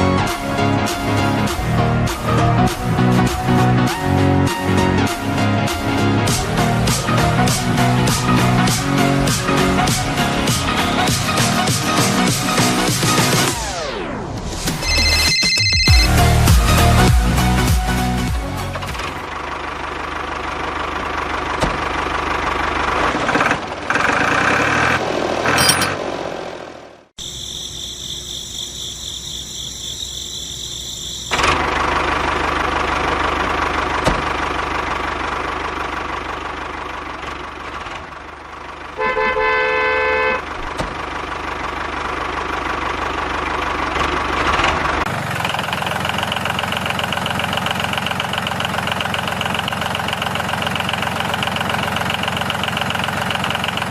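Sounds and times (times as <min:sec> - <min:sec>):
engine running: 0:00.0 - 0:53.9
horn honk: 0:39.0 - 0:40.6.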